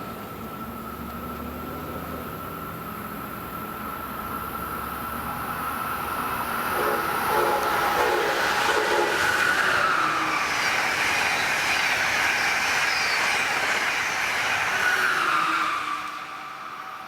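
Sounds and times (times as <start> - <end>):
passenger train passing: 0.0 - 17.0.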